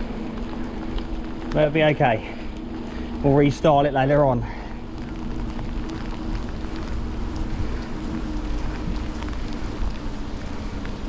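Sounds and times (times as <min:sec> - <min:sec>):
bicycle tyres on wet road: 0:00.0 - 0:11.0
faint low hum: 0:00.0 - 0:11.0
raindrops ticking: 0:00.0 - 0:11.0
wind rumble: 0:00.0 - 0:11.0.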